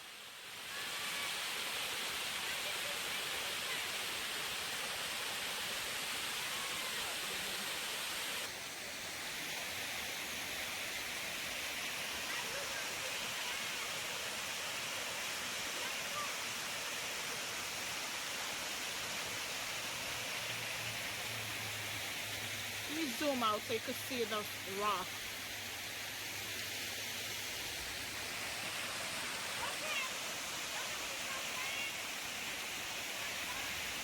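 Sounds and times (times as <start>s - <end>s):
waterfall rushing: 0.1s - 34.0s.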